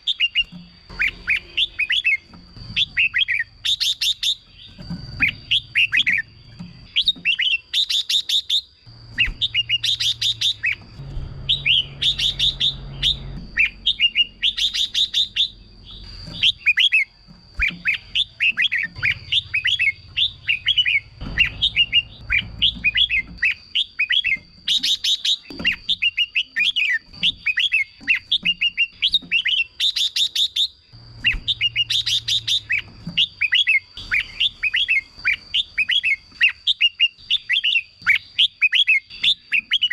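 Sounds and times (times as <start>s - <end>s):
fast rattling bird notes: 0.0s - 38.4s
birds whistling song: 0.0s - 39.9s.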